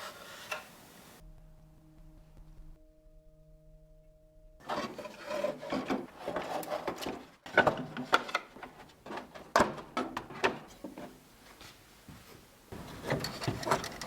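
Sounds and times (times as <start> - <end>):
scraping and rubbing by hand: 0.0 - 1.2, 4.6 - 7.3.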